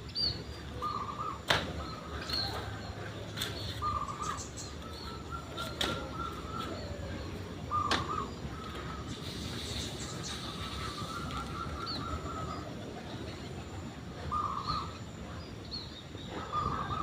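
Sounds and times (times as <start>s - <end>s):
dove cooing: 3.8s - 4.3s, 5.1s - 9.7s.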